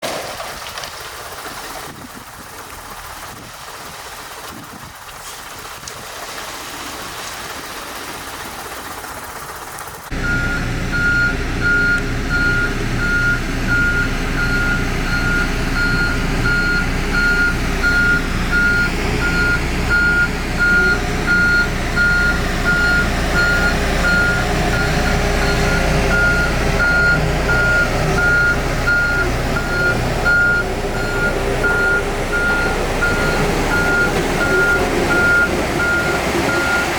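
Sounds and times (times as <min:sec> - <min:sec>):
construction vehicle engine: 0:00.2 - 0:36.9
reversing alarm beeping: 0:10.1 - 0:36.9.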